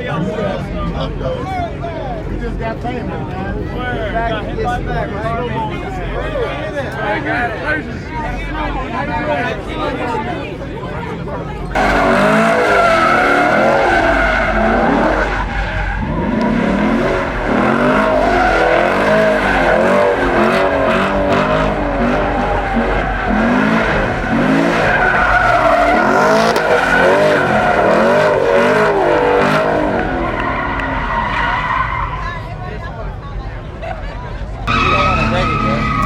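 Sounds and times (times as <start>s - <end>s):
car engine revving: 11.1s - 32.9s, 34.6s - 36.0s
tyres squealing: 11.7s - 32.4s, 34.6s - 36.0s.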